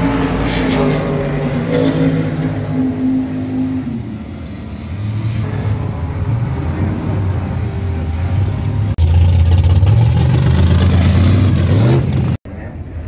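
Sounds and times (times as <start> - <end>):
car engine running: 8.6 - 12.4.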